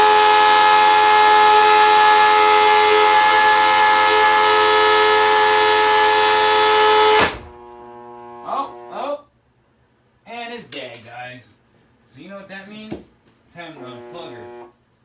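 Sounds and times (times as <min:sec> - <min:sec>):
vacuum cleaner motor whine: 0:00.0 - 0:09.0, 0:13.8 - 0:14.7.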